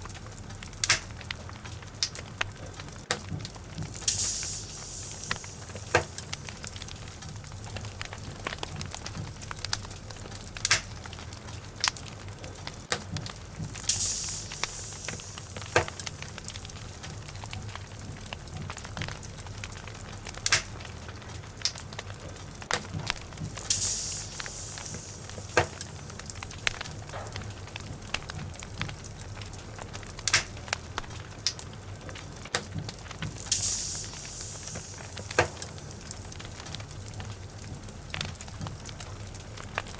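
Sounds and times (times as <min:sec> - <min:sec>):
fire crackling and popping: 0:00.0 - 0:39.9
low rumble of flames: 0:00.0 - 0:39.9
hissing bursts: 0:03.6 - 0:10.0, 0:13.4 - 0:18.0, 0:23.1 - 0:28.1, 0:33.0 - 0:38.1.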